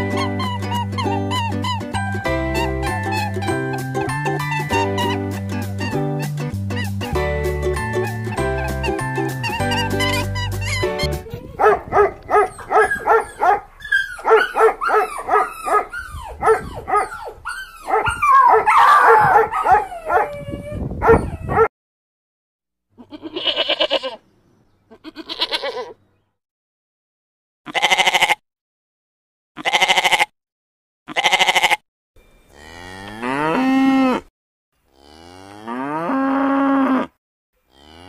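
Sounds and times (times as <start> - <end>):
puppy yapping: 8.0 - 21.7
goats bleating: 23.0 - 24.2, 24.9 - 26.0, 27.7 - 28.4, 29.6 - 30.3, 31.1 - 31.8.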